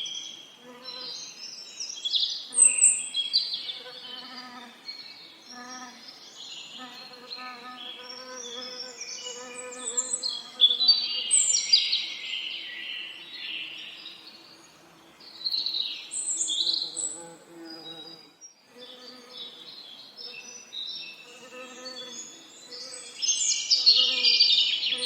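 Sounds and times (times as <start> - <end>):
songbirds chirping and trilling: 0.0 - 25.0
bee buzzing: 16.7 - 19.7.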